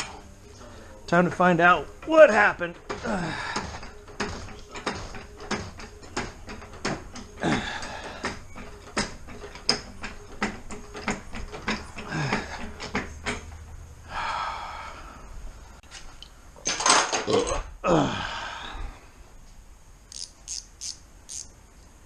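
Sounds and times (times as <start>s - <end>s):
hand tools and metal parts clinking: 1.3s - 13.7s, 16.6s - 17.6s.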